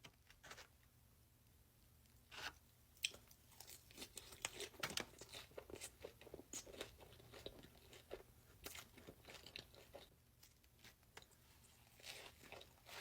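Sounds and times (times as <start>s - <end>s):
person chewing crunchy food: 3.0s - 13.0s.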